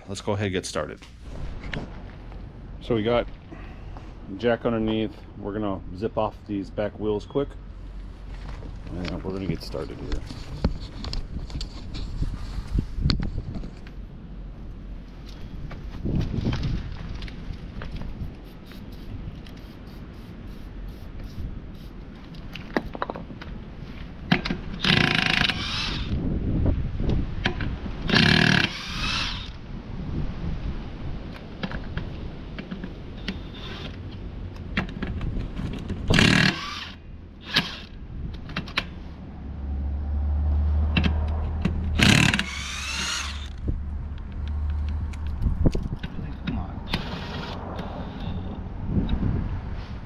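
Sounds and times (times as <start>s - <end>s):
low steady rumble: 0.0s - 22.3s, 32.0s - 50.0s
impact wrench whining: 24.8s - 26.2s, 28.1s - 29.6s, 36.1s - 37.9s, 41.7s - 43.6s.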